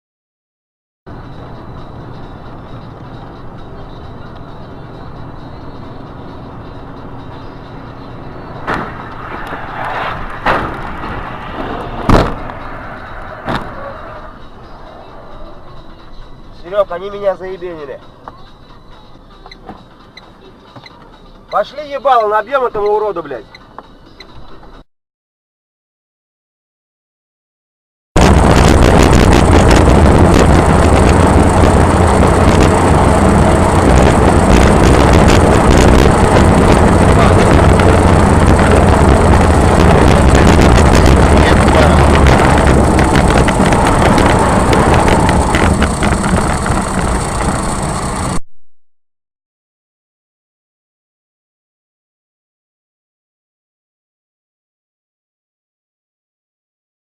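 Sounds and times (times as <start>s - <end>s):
vehicle running: 1.1s - 24.8s, 28.2s - 48.4s
collision bangs: 8.6s - 12.7s.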